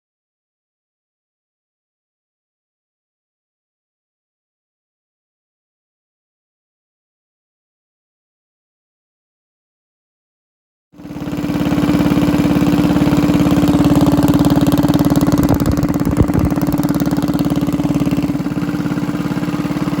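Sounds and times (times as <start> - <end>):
small engine running steadily: 11.0 - 20.0.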